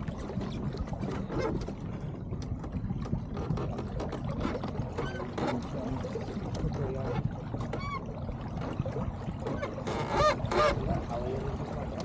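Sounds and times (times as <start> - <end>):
water splashing against hull: 0.0 - 12.0.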